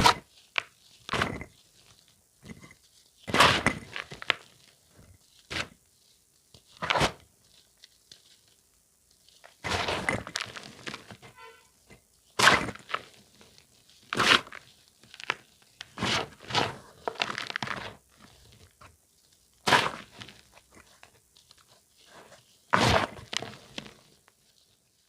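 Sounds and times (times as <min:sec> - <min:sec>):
charcoal crunching: 0:00.0 - 0:05.9, 0:09.1 - 0:25.0.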